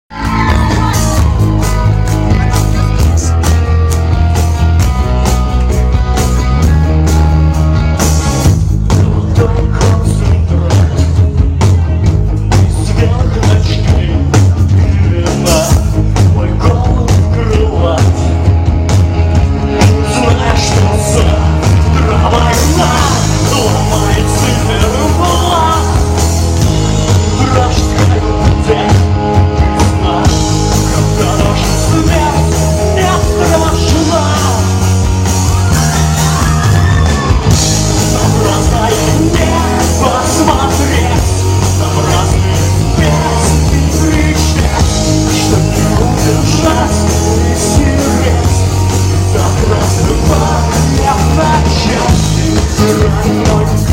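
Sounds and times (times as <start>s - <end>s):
bass line: 0.0s - 53.9s
drums: 0.0s - 53.9s
electric guitars: 0.1s - 53.9s
person singing: 8.7s - 18.6s, 19.7s - 26.5s, 27.1s - 53.9s.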